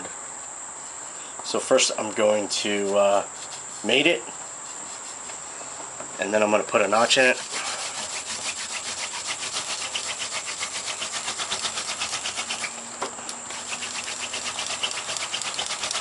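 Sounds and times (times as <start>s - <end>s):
wooden spindle rubbing on wood: 2.5s - 5.4s, 7.0s - 12.8s, 13.5s - 16.0s.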